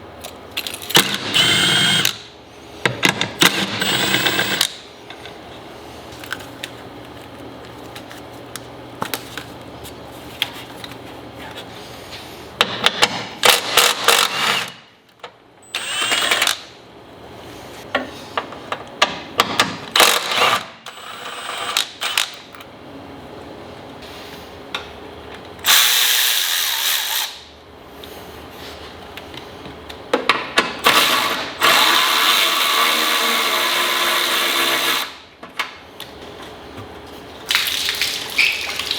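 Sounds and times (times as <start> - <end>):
power tool running: 1.0 - 2.2, 3.4 - 4.8, 15.7 - 16.6, 30.8 - 35.2.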